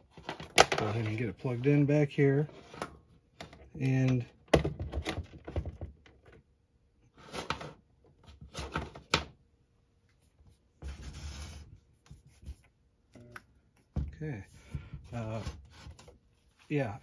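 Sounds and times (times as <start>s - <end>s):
cord rubbing and scraping: 10.8s - 12.6s.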